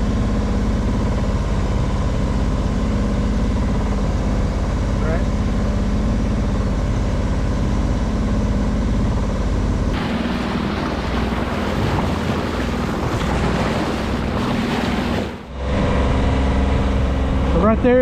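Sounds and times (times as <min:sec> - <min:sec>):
boat engine running: 0:00.0 - 0:18.0
wind and water rushing over hull: 0:00.0 - 0:18.0.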